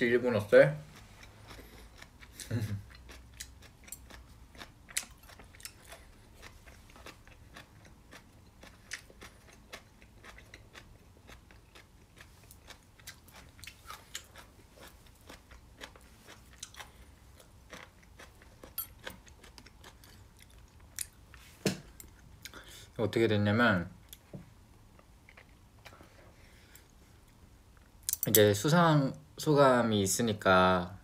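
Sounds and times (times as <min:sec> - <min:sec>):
chewing food: 0:00.8 - 0:22.6, 0:24.0 - 0:28.2.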